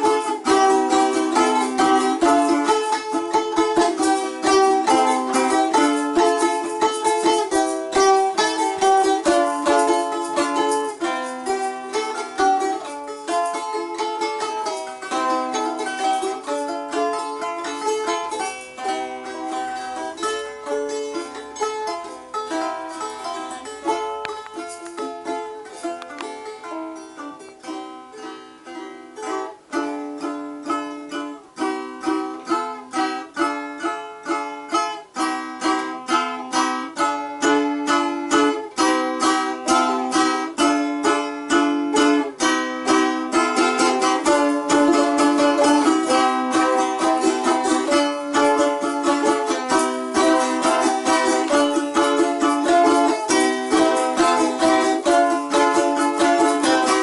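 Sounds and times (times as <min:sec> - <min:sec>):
balalaika strumming: 0:00.0 - 0:57.0.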